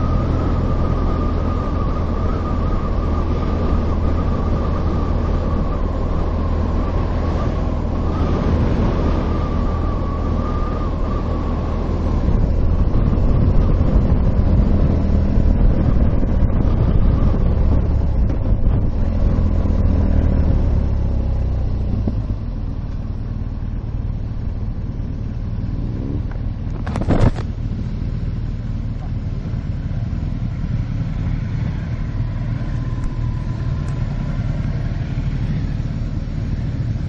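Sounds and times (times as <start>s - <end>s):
wind rush: 0.0s - 22.8s, 23.4s - 28.0s
motorcycle engine running: 20.7s - 37.0s.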